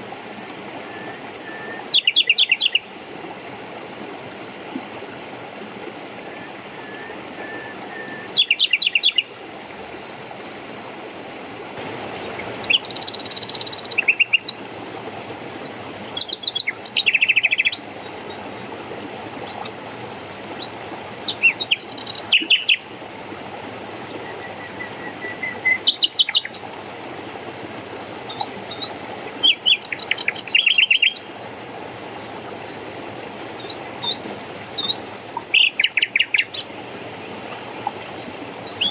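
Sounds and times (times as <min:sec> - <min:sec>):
flowing water: 0:00.0 - 0:38.9
songbirds trilling: 0:01.0 - 0:03.0, 0:06.4 - 0:09.4, 0:12.4 - 0:14.6, 0:15.6 - 0:23.0, 0:23.8 - 0:27.1, 0:27.7 - 0:31.5, 0:33.6 - 0:38.9.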